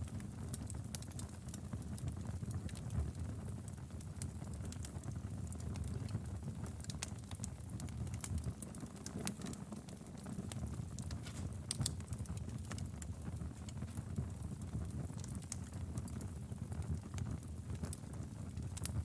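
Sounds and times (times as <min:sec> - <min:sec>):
low rumble of flames: 0:00.0 - 0:19.0
wood fire pops and snaps: 0:04.0 - 0:19.0.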